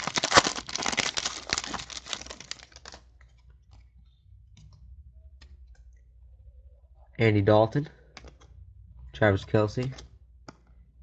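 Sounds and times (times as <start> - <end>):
foil wrapper crinkling and tearing: 0.0 - 3.1.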